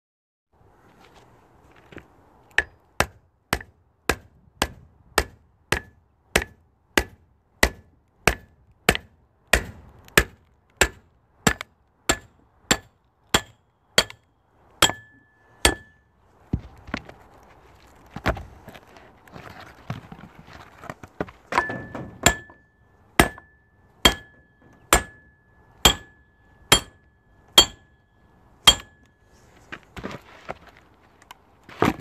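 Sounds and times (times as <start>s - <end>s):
firewood split by hand: 2.5s - 14.2s, 31.6s - 32.0s.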